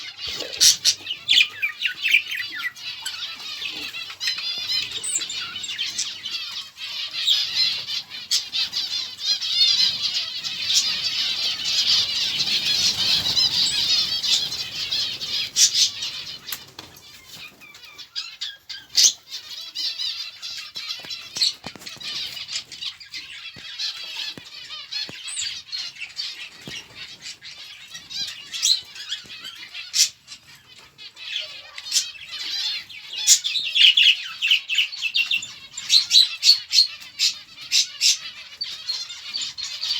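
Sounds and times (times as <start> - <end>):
small birds chirping: 0.0 - 39.9
wing flutters: 7.4 - 17.6.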